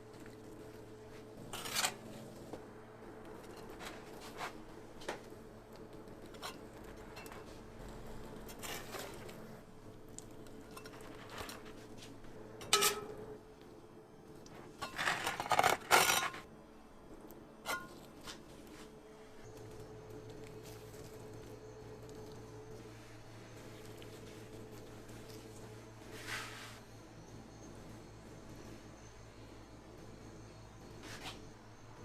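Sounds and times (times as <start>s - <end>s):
utensils and dishes clattering: 12.6s - 13.2s.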